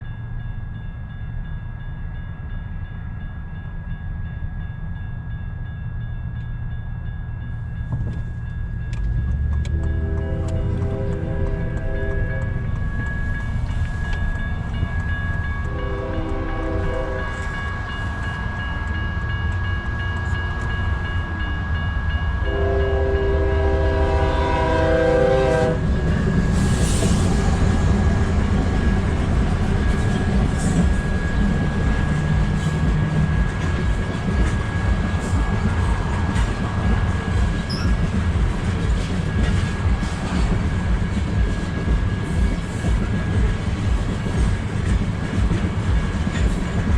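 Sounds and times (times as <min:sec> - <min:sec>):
train rumble: 0:00.0 - 0:46.9
locomotive horn blasts: 0:09.7 - 0:12.8, 0:15.7 - 0:17.6, 0:22.4 - 0:25.9.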